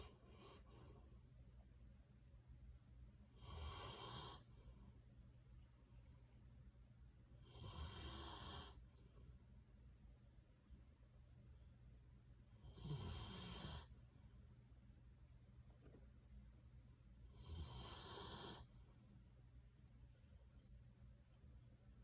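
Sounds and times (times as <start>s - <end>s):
dog snoring faintly: 0.0s - 1.1s, 3.3s - 4.8s, 7.4s - 9.1s, 12.6s - 14.0s, 17.3s - 18.8s.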